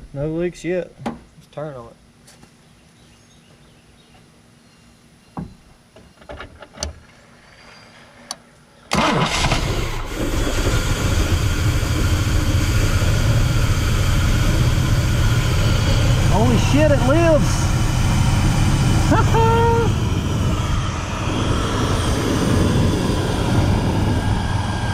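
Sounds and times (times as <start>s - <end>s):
engine starting and running: 8.2s - 24.9s.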